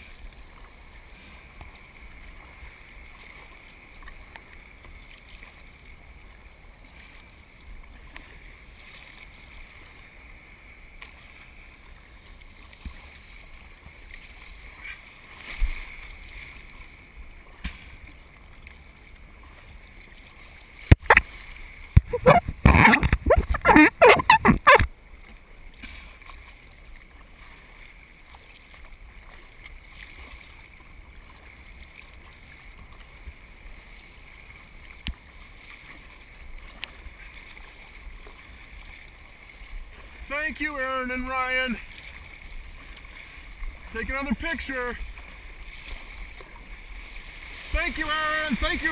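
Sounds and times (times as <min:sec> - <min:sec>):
water wash: 0:20.8 - 0:24.9, 0:34.9 - 0:48.9
wind on microphone: 0:22.0 - 0:24.9.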